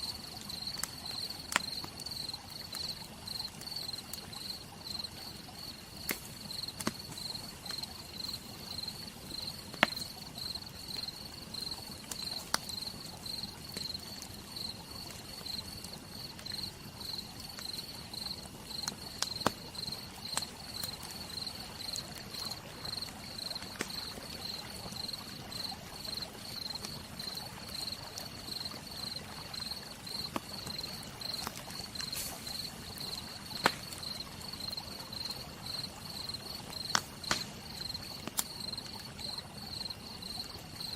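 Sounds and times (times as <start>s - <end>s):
campfire crackling and popping: 0.0s - 40.9s
insect chirping: 0.0s - 40.9s
rain hissing: 29.0s - 35.0s.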